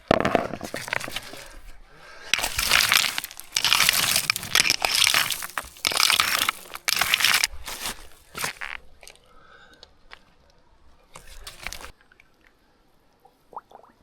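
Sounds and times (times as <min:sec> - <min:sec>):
gravel crunching and scraping: 0:00.0 - 0:09.2, 0:11.1 - 0:11.9.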